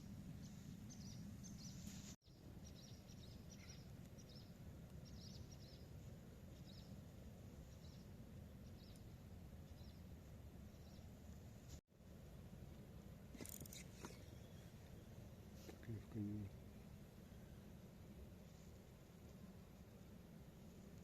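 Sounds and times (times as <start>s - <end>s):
low background hum: 0.0s - 21.0s
swallows chirping: 0.4s - 7.0s.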